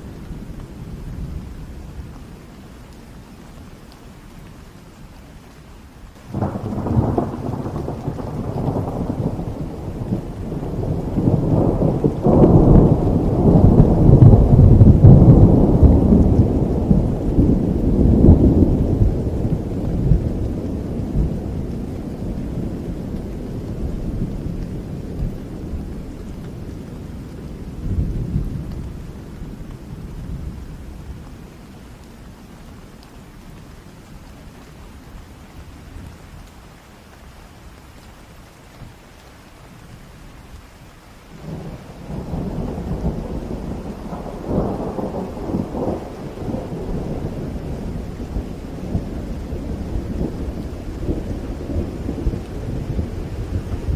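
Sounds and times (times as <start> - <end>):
steady rain: 0.0 - 53.9
thunder rumbling: 6.2 - 32.1, 41.4 - 53.9.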